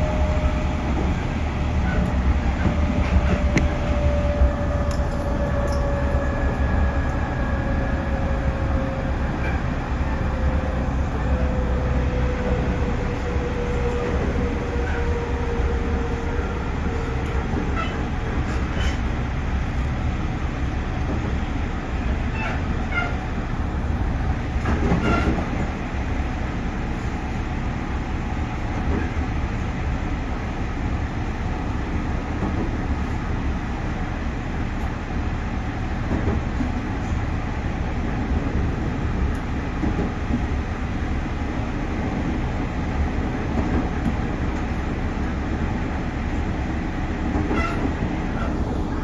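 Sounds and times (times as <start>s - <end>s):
train motor whine: 0.0s - 19.1s
train wheels rumbling on rail: 0.0s - 49.0s.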